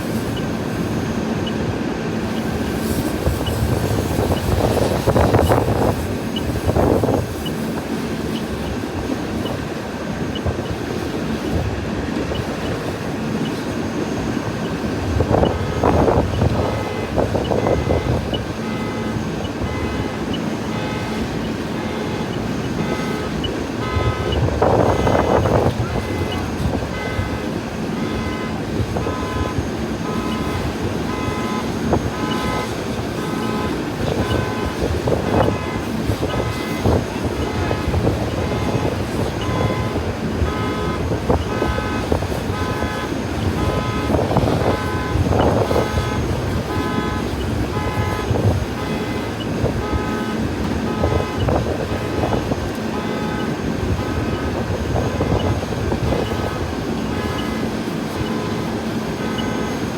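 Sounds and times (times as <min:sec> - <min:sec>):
vehicle engine running: 0:00.0 - 0:59.9
bursts of noise: 0:12.3 - 0:59.9.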